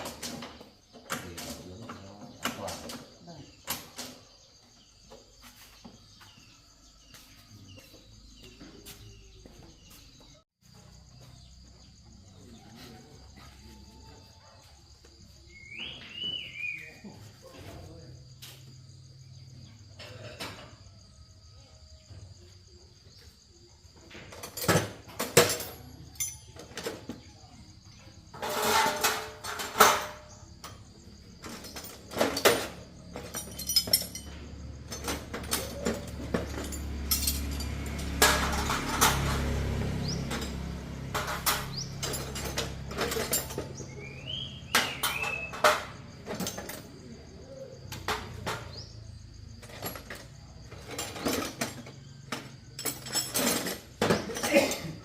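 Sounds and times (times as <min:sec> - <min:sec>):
high insect drone: 0:00.0 - 0:52.9
metal tools clinking: 0:24.2 - 0:27.1, 0:28.3 - 0:47.0, 0:47.8 - 0:55.0.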